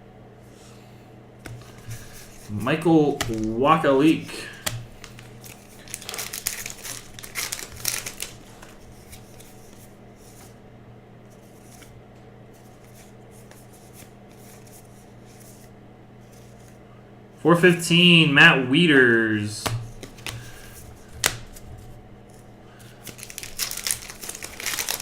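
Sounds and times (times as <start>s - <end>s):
steady low hum: 0.0s - 25.0s
cards flipping and sliding: 1.4s - 10.6s, 11.3s - 11.9s, 12.6s - 16.8s, 19.6s - 21.7s, 22.3s - 25.0s.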